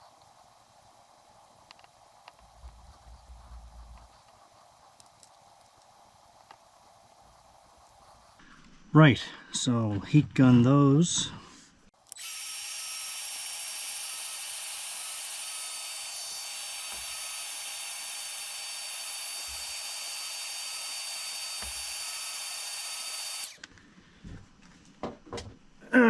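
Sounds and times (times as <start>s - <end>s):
heat gun running: 12.0s - 23.6s.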